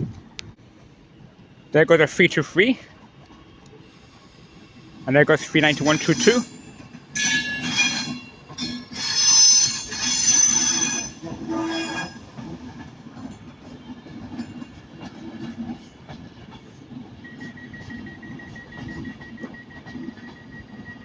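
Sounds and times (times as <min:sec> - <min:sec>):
train rolling rumble: 0:00.0 - 0:21.0
train wheels squealing: 0:03.8 - 0:12.4, 0:17.2 - 0:21.0.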